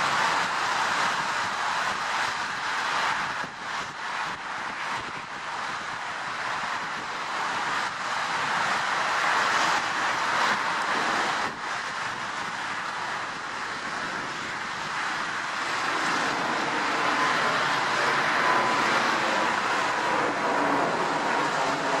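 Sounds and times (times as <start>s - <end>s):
jet engines rushing: 0.0s - 22.0s.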